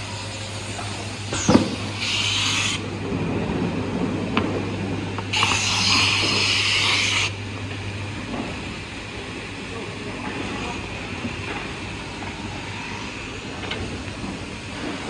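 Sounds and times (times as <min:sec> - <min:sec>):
machine motor hum: 0:00.0 - 0:15.0
pneumatic air release hiss: 0:01.2 - 0:02.8, 0:05.3 - 0:07.4.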